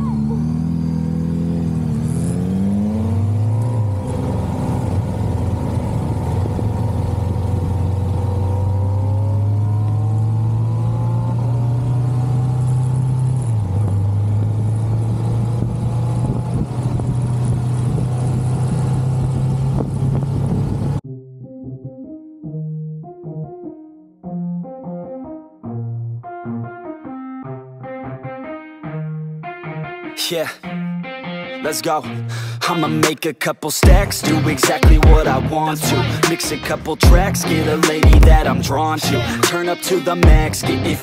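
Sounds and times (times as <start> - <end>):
motorcycle engine cruising: 0.0 - 21.0, 33.8 - 39.4.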